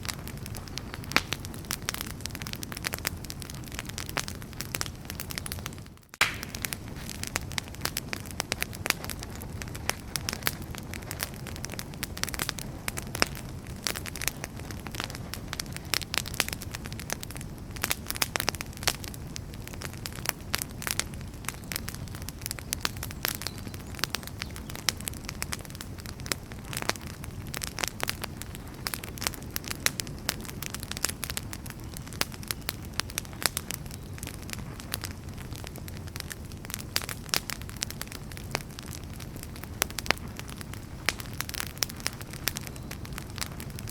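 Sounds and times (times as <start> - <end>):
low rumble of flames: 0.0 - 43.9
wood fire crackling: 0.0 - 43.9.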